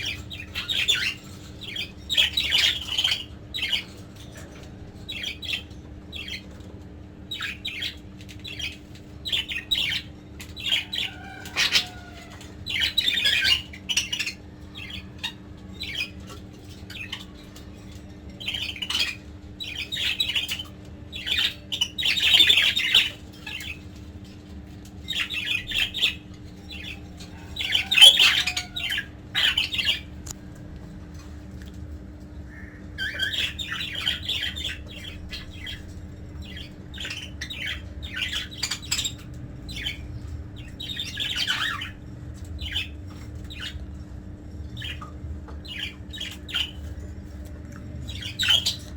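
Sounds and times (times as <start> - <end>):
budgerigars squawking and chattering: 0.0 - 30.4, 31.1 - 48.9
steady low hum: 0.0 - 48.9.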